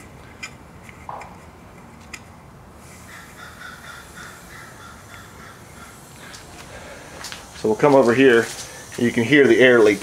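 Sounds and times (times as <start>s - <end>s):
bird cawing: 3.0s - 7.0s.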